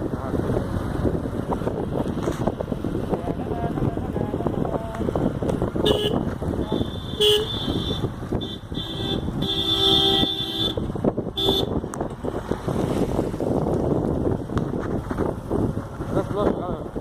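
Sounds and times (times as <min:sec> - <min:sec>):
vehicle horn honking: 0:05.8 - 0:11.8.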